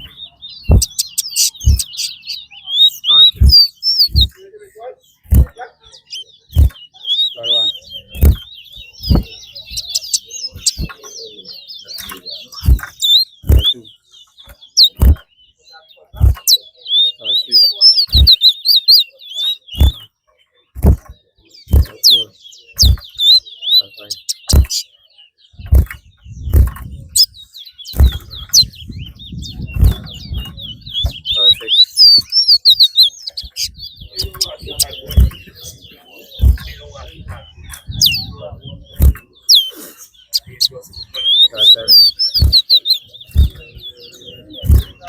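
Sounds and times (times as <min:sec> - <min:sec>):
songbird chirping and warbling: 0:00.0 - 0:45.0
short low thumps: 0:00.7 - 0:02.0, 0:03.3 - 0:04.4, 0:05.2 - 0:05.6, 0:06.5 - 0:06.8, 0:08.0 - 0:11.0, 0:12.6 - 0:13.8, 0:14.9 - 0:15.2, 0:16.2 - 0:16.5, 0:18.1 - 0:18.4, 0:19.8 - 0:20.0, 0:20.8 - 0:22.0, 0:22.8 - 0:23.3, 0:24.4 - 0:24.8, 0:25.6 - 0:35.7, 0:36.4 - 0:39.6, 0:40.4 - 0:43.9, 0:44.6 - 0:45.0.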